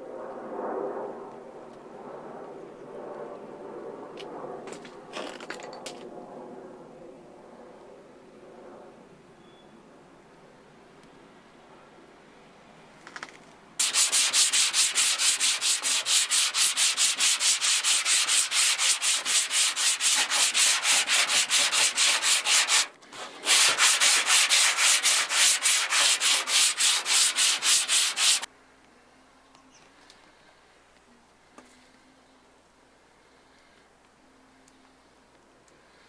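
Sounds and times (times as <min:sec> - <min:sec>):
sandpaper rasping on metal panel: 0:13.8 - 0:28.5.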